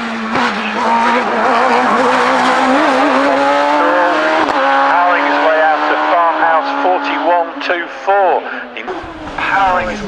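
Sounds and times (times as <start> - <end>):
racing car engine revving: 0.0 - 10.0.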